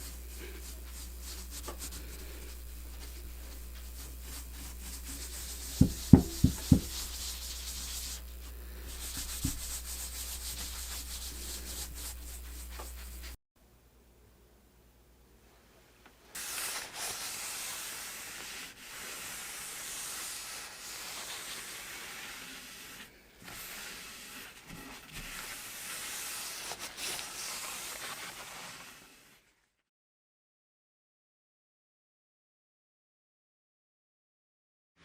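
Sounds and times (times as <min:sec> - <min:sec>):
steady hiss: 0:00.0 - 0:13.4.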